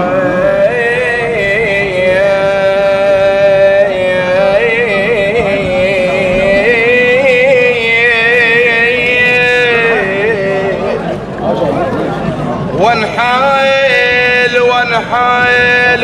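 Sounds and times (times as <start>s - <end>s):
man singing mournful song: 0.0s - 11.2s, 12.8s - 16.0s
sustained melody line: 0.0s - 16.0s.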